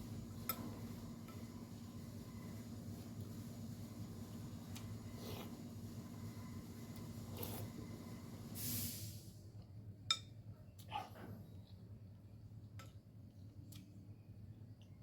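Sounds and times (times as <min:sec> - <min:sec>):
breathy hiss: 0:08.6 - 0:09.3.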